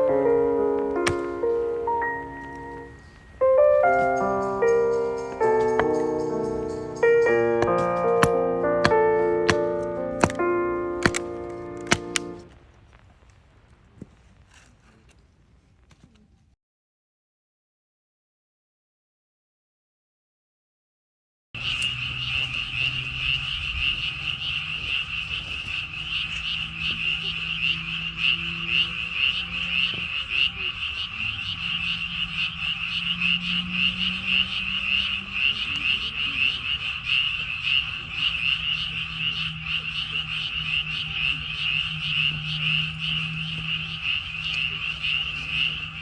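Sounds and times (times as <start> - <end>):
frogs croaking: 0.0 - 16.2, 21.6 - 46.0
faint low hum: 21.6 - 46.0.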